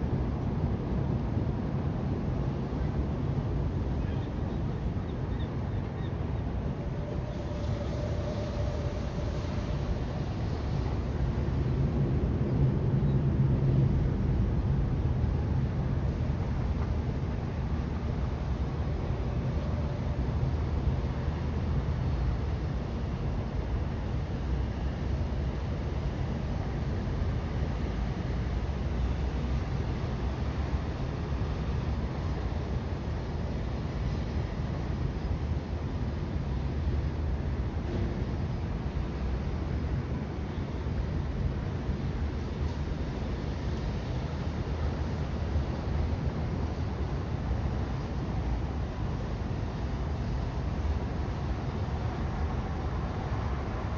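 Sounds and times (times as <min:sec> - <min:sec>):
low rumbling outdoor ambience: 0:00.0 - 0:53.9
low mechanical rumble: 0:06.4 - 0:23.1.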